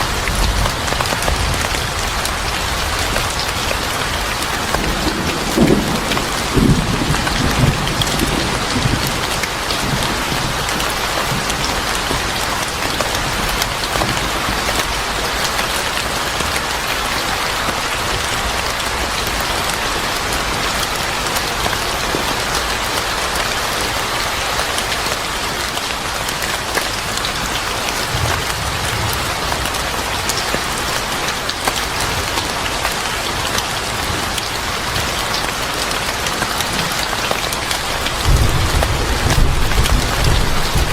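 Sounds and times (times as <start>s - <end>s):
thunder rumble: 0.0s - 14.6s, 28.0s - 30.9s, 37.8s - 40.9s
heavy rain pattering: 0.0s - 40.9s.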